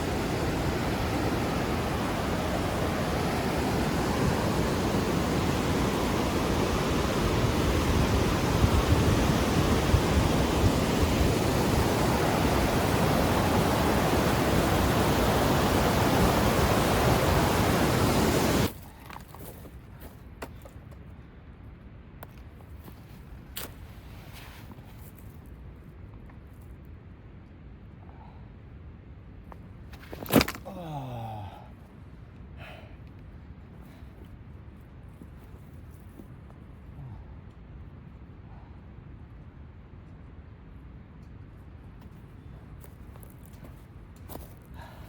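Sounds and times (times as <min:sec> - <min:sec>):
fast-flowing mountain water: 0:00.0 - 0:18.7.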